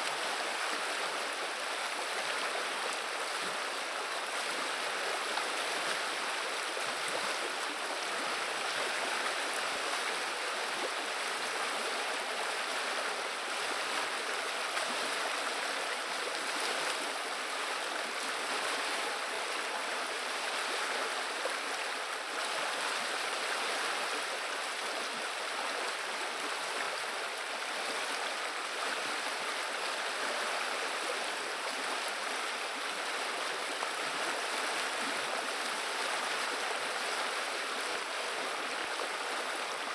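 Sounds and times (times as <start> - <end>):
river water babbling: 0.0 - 39.9.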